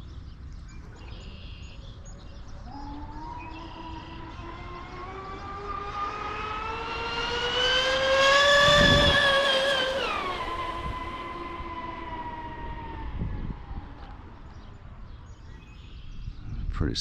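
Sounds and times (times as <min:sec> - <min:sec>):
electric boat motor whining: 0:02.4 - 0:15.0.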